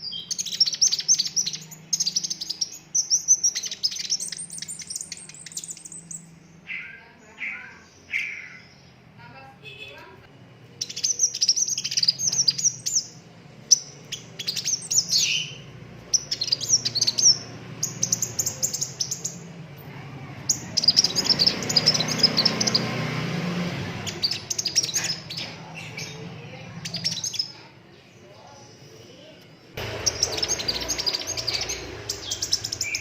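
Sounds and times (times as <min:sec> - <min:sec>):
bird chirping and trilling: 0:00.0 - 0:09.9, 0:10.7 - 0:28.7, 0:29.8 - 0:33.0.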